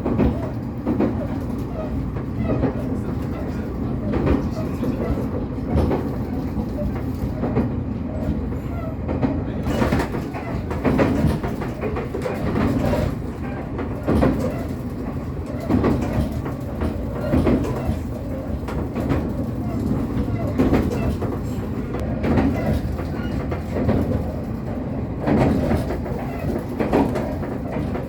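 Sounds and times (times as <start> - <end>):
train rumbling on track: 0.0 - 28.0
wheels clicking over rail joints: 0.0 - 28.0.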